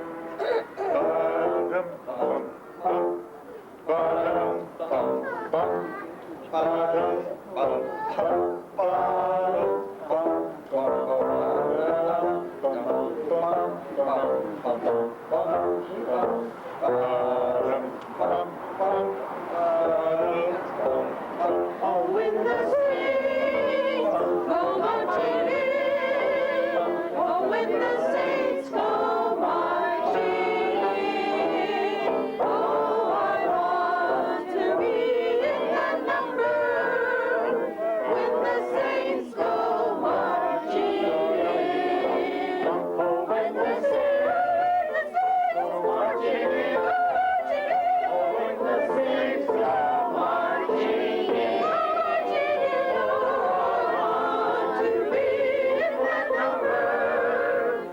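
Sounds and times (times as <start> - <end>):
children's choir singing: 0.0 - 57.9.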